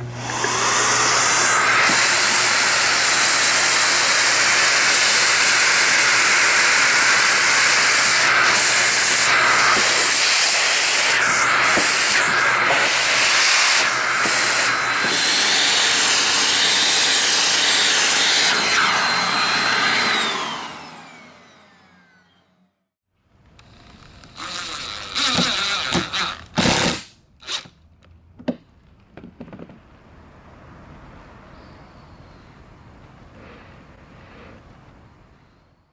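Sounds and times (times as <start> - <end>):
vacuum cleaner running: 0.0 - 22.8, 24.3 - 27.6
knocks and clatters: 28.0 - 29.9.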